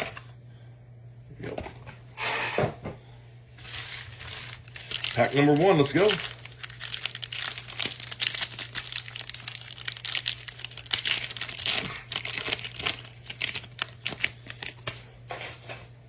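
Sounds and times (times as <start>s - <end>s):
low electrical hum: 0.0s - 16.0s
foil wrapper tearing and crinkling: 3.6s - 15.6s.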